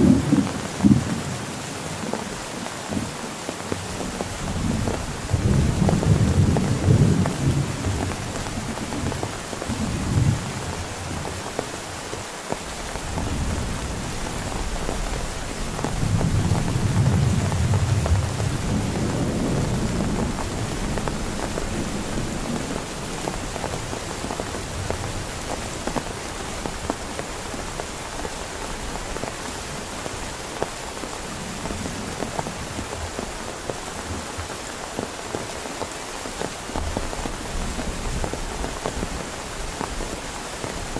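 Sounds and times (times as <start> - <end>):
low thunder rumbles: 0.0 - 1.5, 4.0 - 11.4, 13.1 - 26.9
heavy rain pattering: 0.0 - 40.9.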